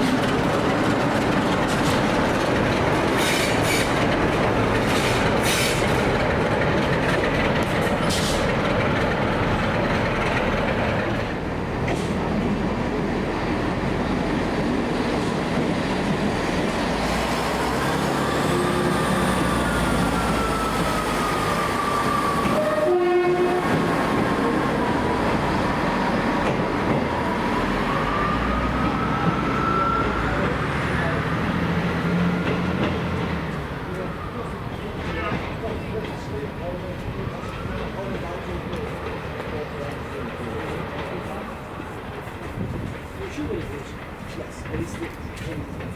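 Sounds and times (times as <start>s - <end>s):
train wheels clattering: 0.0s - 12.6s, 37.7s - 45.9s
train horn note: 22.5s - 23.9s.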